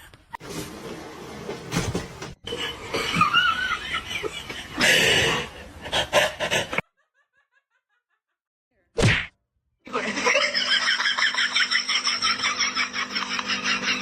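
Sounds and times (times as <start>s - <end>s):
people laughing hard: 2.5s - 8.2s, 9.9s - 14.0s.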